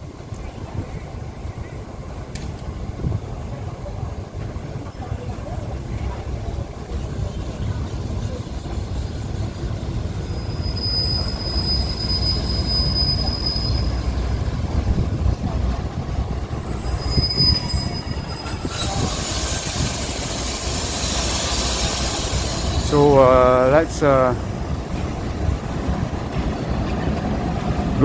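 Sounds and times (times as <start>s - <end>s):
diesel train rumbling: 0.0s - 28.0s
high squeals: 9.3s - 14.3s, 16.2s - 23.2s
hiss: 18.6s - 23.1s.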